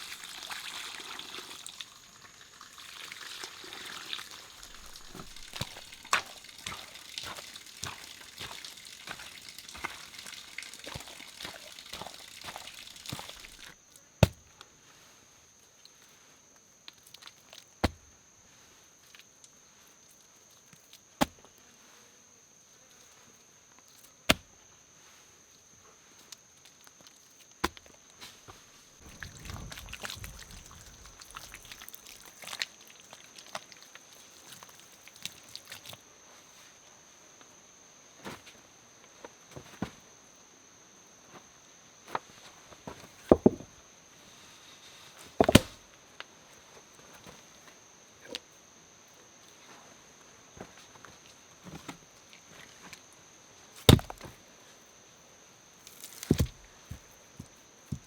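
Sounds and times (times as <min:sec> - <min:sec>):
high insect drone: 0:00.0 - 0:14.0, 0:29.0 - 0:39.5
insects droning: 0:00.0 - 0:58.0
axe chopping wood: 0:04.7 - 0:09.2, 0:13.3 - 0:14.5, 0:24.3 - 0:24.5, 0:43.3 - 0:43.6, 0:45.4 - 0:45.8, 0:53.9 - 0:54.3, 0:56.2 - 0:56.6
sharp knocks and thumps: 0:43.3 - 0:43.7, 0:45.4 - 0:45.8.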